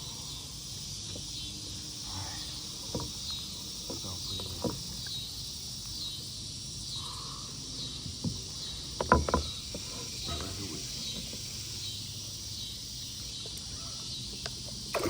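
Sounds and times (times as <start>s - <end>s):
insect chorus buzzing: 0.0s - 15.0s
sharp knocks on kayak: 9.0s - 9.6s.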